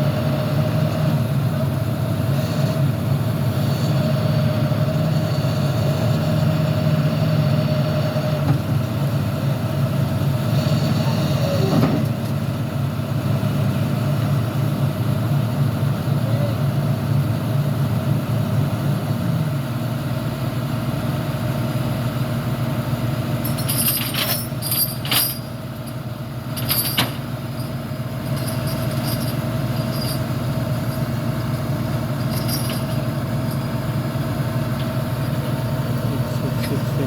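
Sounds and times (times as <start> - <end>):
heavy diesel engine running: 0.0 - 37.0.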